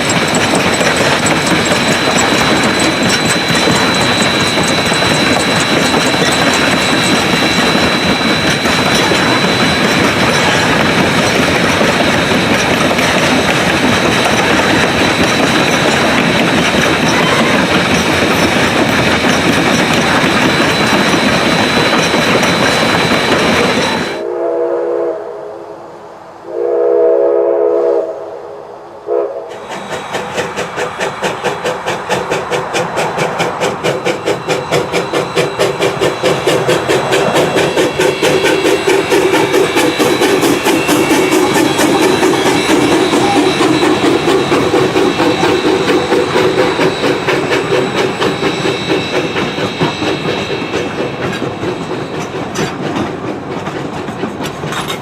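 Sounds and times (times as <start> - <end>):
steam locomotive chuffing: 0.0 - 25.1, 29.1 - 55.0
steam whistle blasts: 23.8 - 25.9, 26.5 - 29.7.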